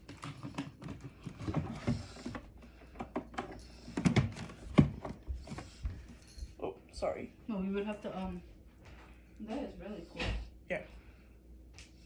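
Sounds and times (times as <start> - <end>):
plastic fridge handling clatter: 0.0 - 5.7.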